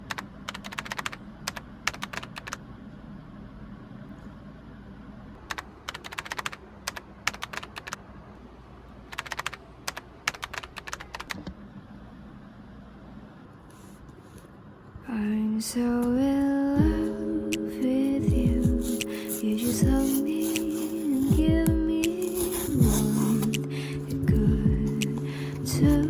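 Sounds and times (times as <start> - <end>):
keyboard typing clicks: 0.0 - 2.6, 5.5 - 8.0, 9.1 - 11.5.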